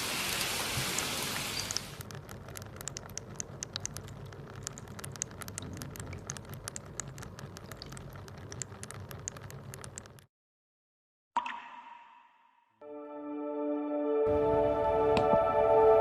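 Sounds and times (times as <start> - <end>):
water drops ticking into water: 0.3 - 10.3, 11.4 - 12.5.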